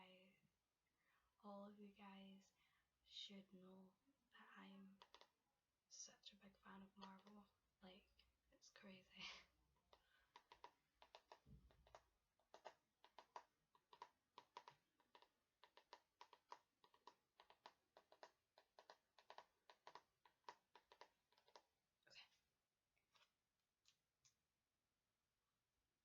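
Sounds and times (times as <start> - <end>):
fingernails tapping on a book: 5.0 - 5.3, 9.8 - 21.6.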